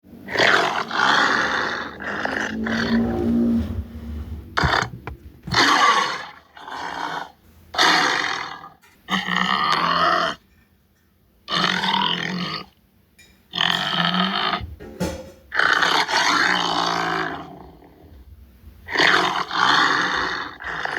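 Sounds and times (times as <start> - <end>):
tiger growling and grunting: 0.2 - 10.4, 15.6 - 18.2, 18.9 - 20.9.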